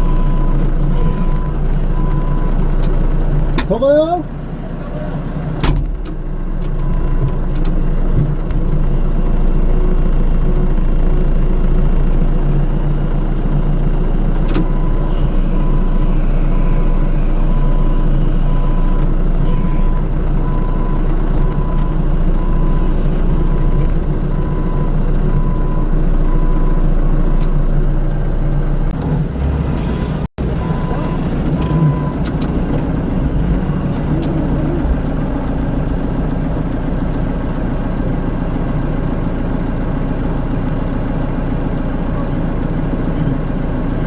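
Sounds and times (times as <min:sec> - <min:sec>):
reversing alarm beeping: 0:00.0 - 0:02.6, 0:14.5 - 0:26.9, 0:30.6 - 0:32.3
forklift engine running: 0:00.0 - 0:44.0.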